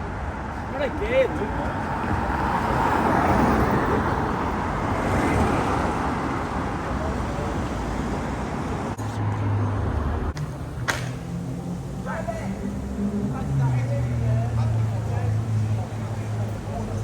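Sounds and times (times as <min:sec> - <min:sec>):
cars passing: 0:00.0 - 0:17.0.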